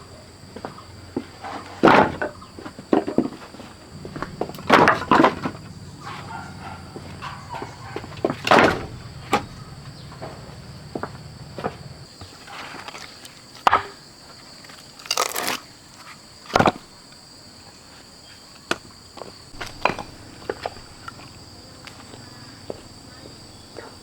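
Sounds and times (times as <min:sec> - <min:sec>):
insects chirring: 0:00.0 - 0:24.0
heavy thump: 0:04.0 - 0:06.3, 0:06.9 - 0:12.1, 0:19.5 - 0:22.0
rustling crunch: 0:14.7 - 0:16.1, 0:19.5 - 0:23.0
sharp knocks and clicks: 0:19.6 - 0:21.4.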